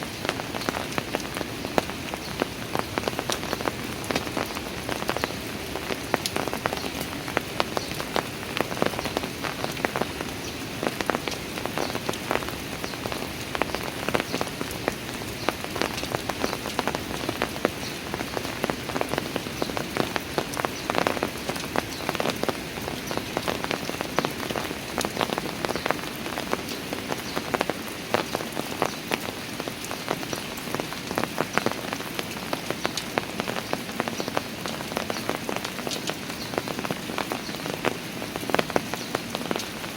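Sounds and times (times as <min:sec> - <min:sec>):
rain drops hitting stone steps: 0:00.0 - 0:39.9
rain hiss: 0:00.0 - 0:39.9.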